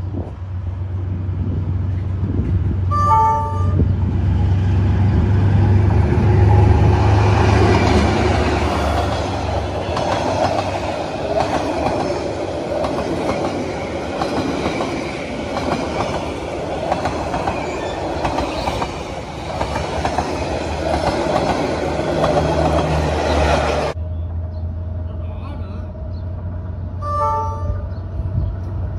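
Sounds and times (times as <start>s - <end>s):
train wheels clattering on rails: 6.8s - 24.0s.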